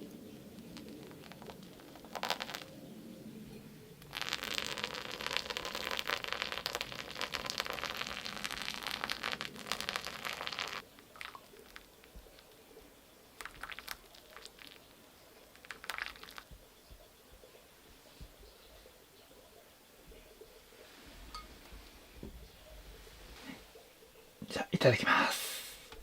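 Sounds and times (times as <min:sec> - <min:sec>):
packaging crackling: 0:00.7 - 0:02.8, 0:04.0 - 0:11.9, 0:13.4 - 0:14.8.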